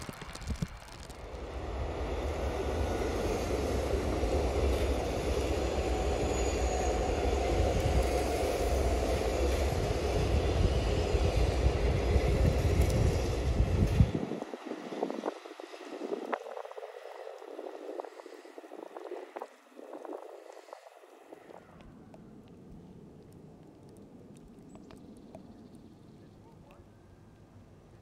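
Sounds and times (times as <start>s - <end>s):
train wheels rumbling: 0.0s - 20.3s
hiss: 0.0s - 21.6s.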